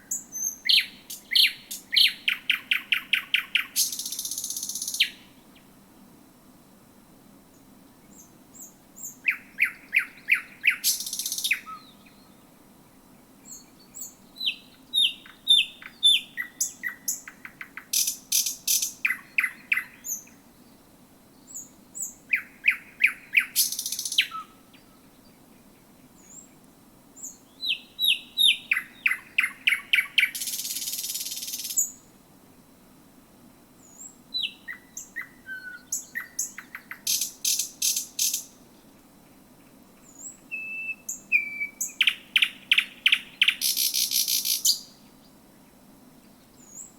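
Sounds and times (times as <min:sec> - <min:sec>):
bird singing whistles and notes: 0:00.0 - 0:05.3, 0:08.1 - 0:12.4, 0:13.5 - 0:20.4, 0:21.4 - 0:25.0, 0:27.2 - 0:32.0, 0:33.8 - 0:38.5, 0:40.1 - 0:45.0.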